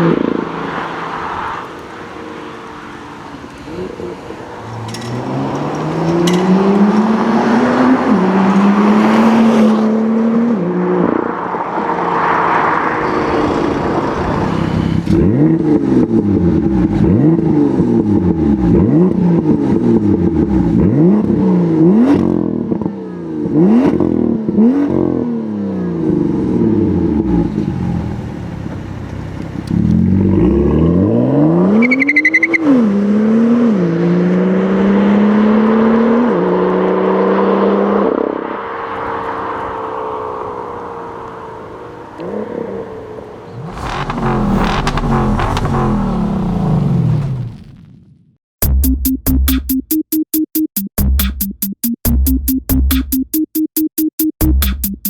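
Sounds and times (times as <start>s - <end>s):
loud car engine revving: 0.0s - 28.4s, 29.6s - 47.8s.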